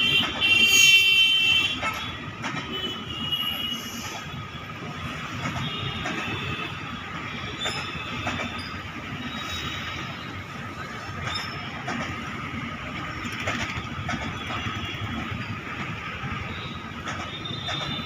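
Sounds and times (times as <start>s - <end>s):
train wheels rumbling: 0.0s - 18.0s
wheels knocking on rail joints: 1.4s - 3.6s, 5.0s - 9.1s, 10.0s - 18.0s.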